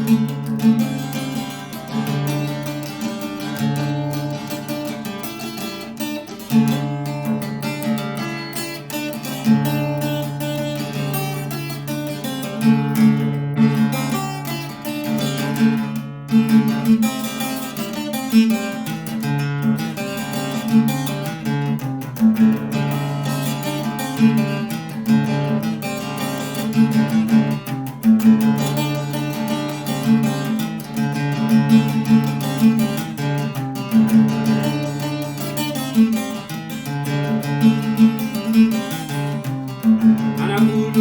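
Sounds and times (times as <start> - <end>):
acoustic guitar music: 0.0 - 41.0.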